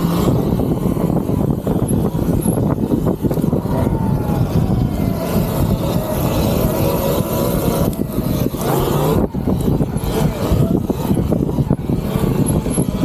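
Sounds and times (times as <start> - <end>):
electric motor whine: 0.0 - 13.0
wind buffeting microphone: 0.0 - 13.0.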